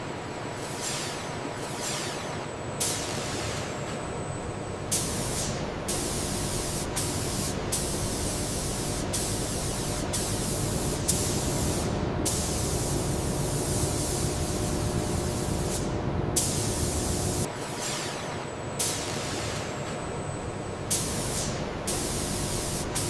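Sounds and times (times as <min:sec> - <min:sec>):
low machinery hum: 0:10.4 - 0:17.5.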